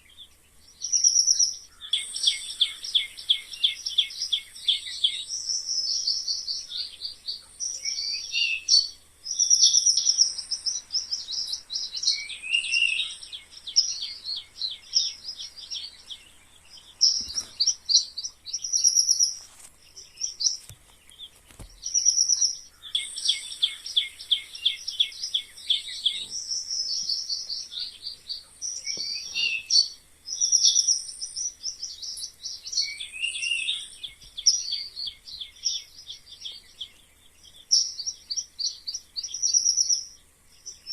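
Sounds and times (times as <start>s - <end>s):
mice squeaking: 17.0s - 34.7s.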